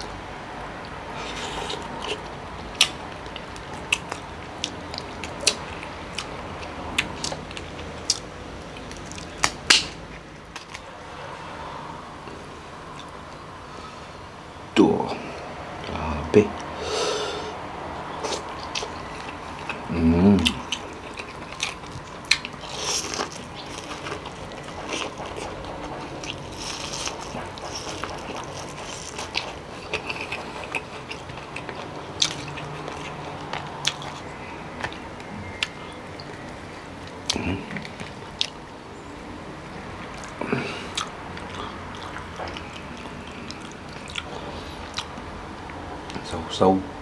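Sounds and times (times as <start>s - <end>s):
chewing and mouth smacks: 0.8s - 10.8s, 18.2s - 38.6s, 40.0s - 46.2s
person humming: 19.9s - 20.6s.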